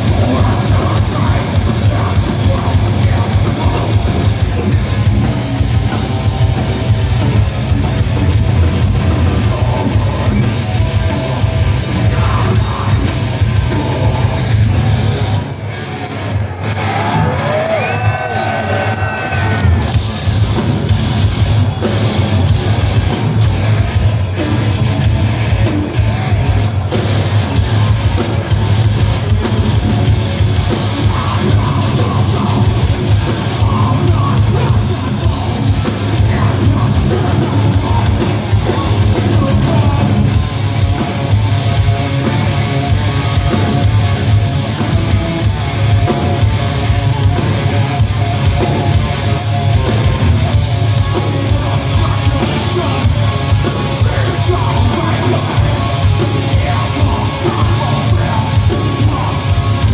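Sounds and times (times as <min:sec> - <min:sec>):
bass: 0:00.0 - 0:59.9
distorted electric guitars: 0:00.0 - 0:59.9
drums: 0:00.0 - 0:59.9
shouted vocals: 0:16.4 - 0:20.1.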